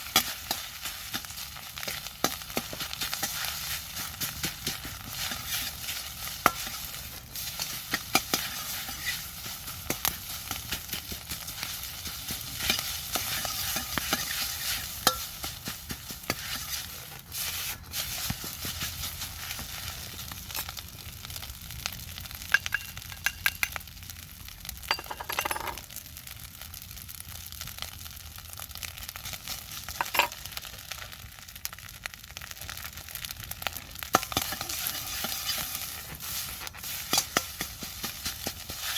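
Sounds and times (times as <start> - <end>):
rice sizzling in a wok: 0.0 - 38.9
utensil scraping a pan: 1.8 - 9.3, 11.6 - 20.8, 30.0 - 30.4, 34.2 - 38.9.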